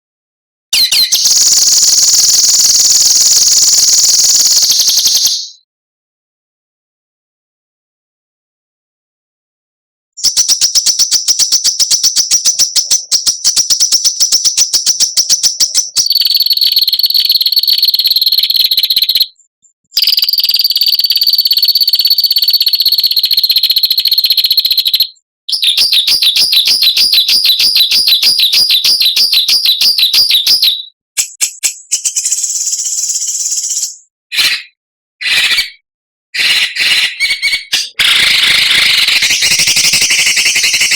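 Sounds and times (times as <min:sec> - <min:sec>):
songbird harsh rattling trills: 0:00.8 - 0:05.5.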